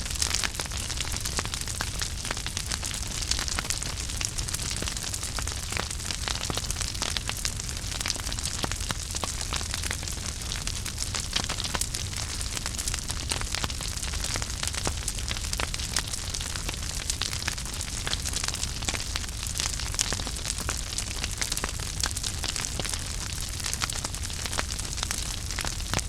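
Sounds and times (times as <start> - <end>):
wood fire crackling in fireplace: 0.0 - 26.0.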